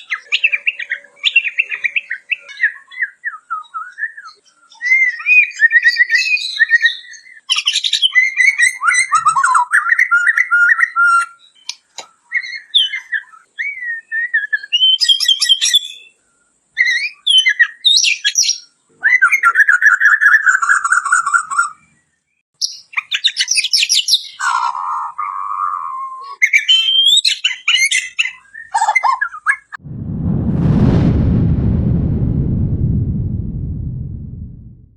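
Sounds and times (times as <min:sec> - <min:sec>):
bird singing varied whistled song: 0:00.0 - 0:16.2, 0:16.8 - 0:24.4, 0:26.1 - 0:29.5.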